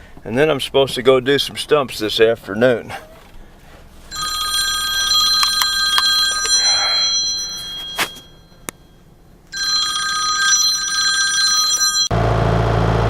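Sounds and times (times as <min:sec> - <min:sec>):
electric bell ringing: 0:04.1 - 0:12.2.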